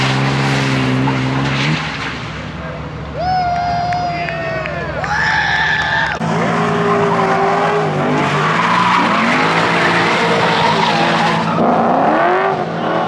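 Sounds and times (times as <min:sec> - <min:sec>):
tyres skidding and squealing: 0:02.9 - 0:12.2.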